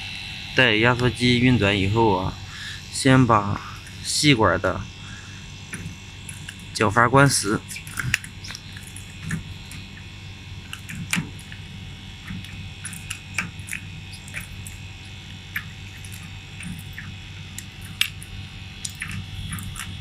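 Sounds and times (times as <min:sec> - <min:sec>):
air conditioner unit humming: 0:00.0 - 0:20.0
tool clicking and squeaking on valve: 0:07.7 - 0:09.8.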